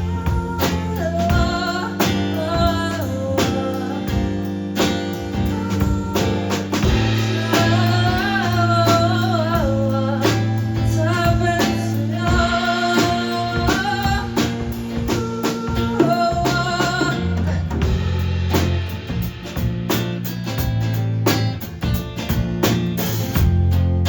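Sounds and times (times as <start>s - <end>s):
person singing: 0.0s - 4.5s, 5.3s - 18.3s
guitar: 0.0s - 24.0s
low bass notes: 0.0s - 24.0s
regular beat: 0.0s - 24.0s.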